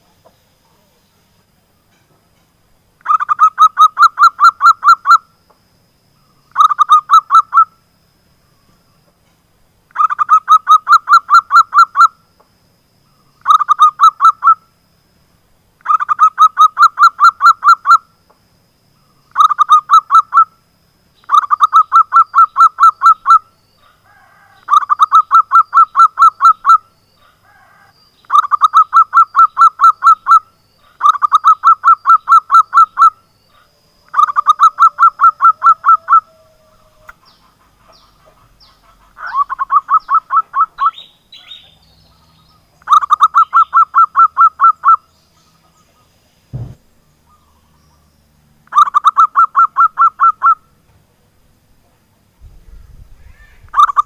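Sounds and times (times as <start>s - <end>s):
dove song of rapid staccato notes: 37.1s - 40.9s, 48.6s - 50.6s.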